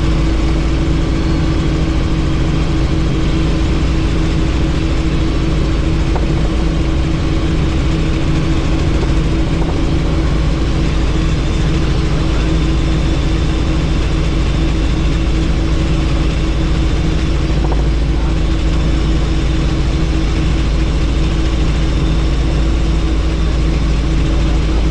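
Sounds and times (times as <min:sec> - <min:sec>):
helicopter engine and rotor: 0:00.0 - 0:24.9.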